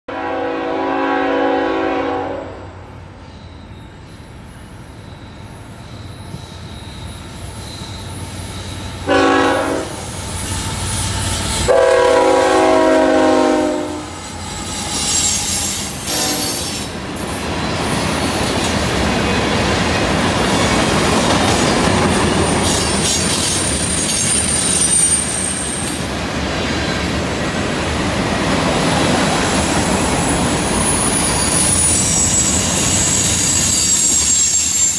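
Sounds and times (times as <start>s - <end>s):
locomotive horn blasts: 0.1s - 2.7s, 9.0s - 10.1s, 11.6s - 14.2s, 16.0s - 16.7s
high-pitched flange squeal: 2.9s - 18.8s, 20.5s - 27.1s, 29.6s - 34.9s.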